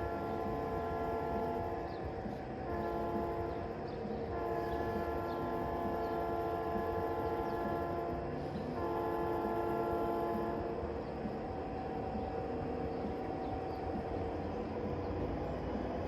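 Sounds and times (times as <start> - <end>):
train horn blasts: 0.0 - 15.5
train rumbling: 0.0 - 16.0.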